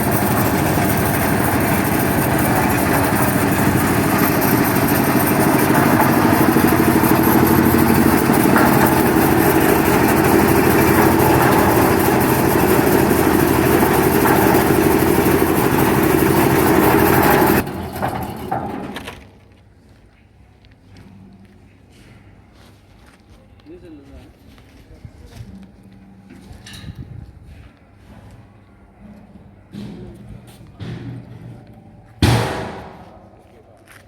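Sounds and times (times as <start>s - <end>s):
concrete mixer diesel engine: 0.0s - 19.4s.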